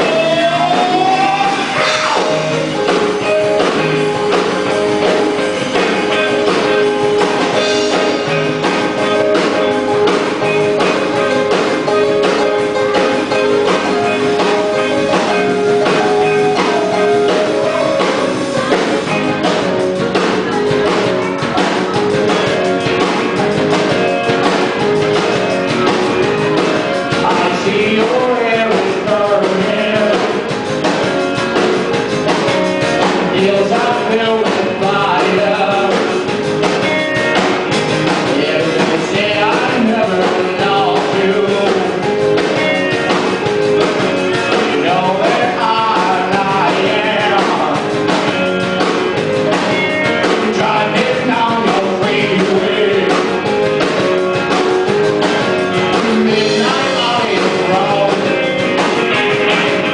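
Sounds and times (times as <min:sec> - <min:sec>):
person singing: 0:00.0 - 0:10.1, 0:21.5 - 0:30.6, 0:33.0 - 0:36.3, 0:38.2 - 0:42.7, 0:44.2 - 0:48.1, 0:49.7 - 0:53.7, 0:55.6 - 0:59.9
drums: 0:00.0 - 0:59.9
electric guitar: 0:00.0 - 0:59.9.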